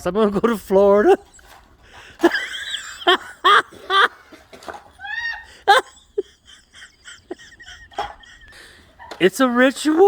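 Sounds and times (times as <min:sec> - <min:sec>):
person laughing: 0:02.2 - 0:04.2, 0:05.0 - 0:09.1.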